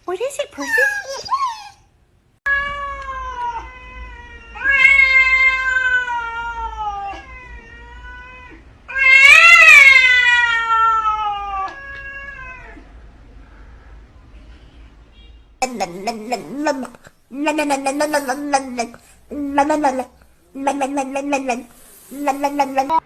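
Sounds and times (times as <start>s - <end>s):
cat yowling: 2.5s - 12.9s.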